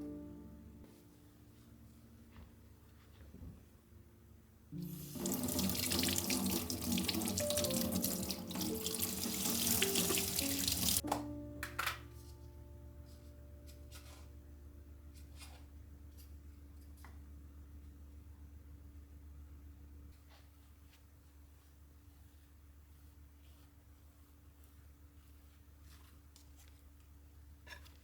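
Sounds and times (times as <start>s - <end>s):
tap water filling a container: 4.8s - 11.0s.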